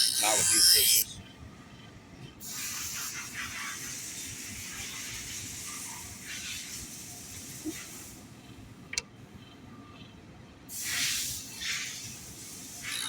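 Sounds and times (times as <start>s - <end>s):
blade grinding on sharpener wheel: 0.0s - 1.1s.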